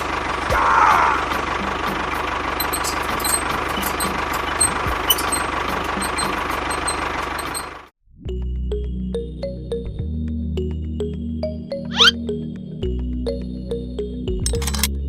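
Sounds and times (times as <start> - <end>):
music: 0.0 - 7.2, 8.0 - 15.0
small engine knocking: 1.2 - 7.9.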